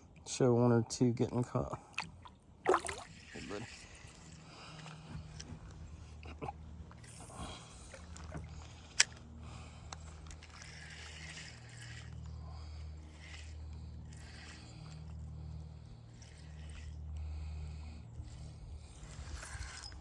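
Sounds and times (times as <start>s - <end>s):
steady low rumble: 1.8s - 20.0s
water sloshing: 1.9s - 6.0s, 6.9s - 9.2s
kayak handling noises: 4.6s - 12.4s.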